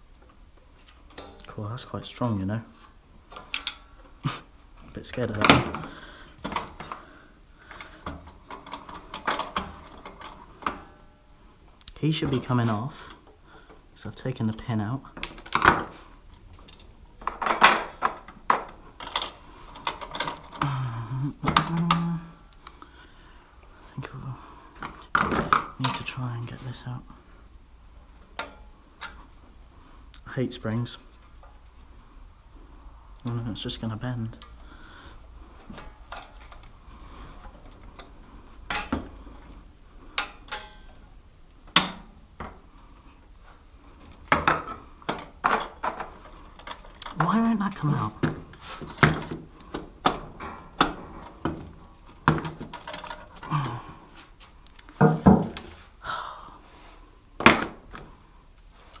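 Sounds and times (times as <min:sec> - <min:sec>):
hand tools clinking on metal: 0:01.1 - 0:01.6, 0:12.1 - 0:13.3, 0:38.7 - 0:41.1
metal tools clinking and knocking: 0:01.1 - 0:01.6, 0:12.1 - 0:13.4, 0:16.5 - 0:20.8, 0:28.3 - 0:29.2, 0:35.6 - 0:41.1, 0:44.3 - 0:53.6.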